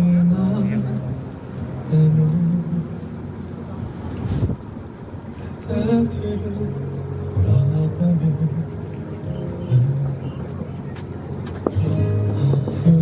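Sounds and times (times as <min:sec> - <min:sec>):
music through loudspeakers: 0:05.6 - 0:13.0.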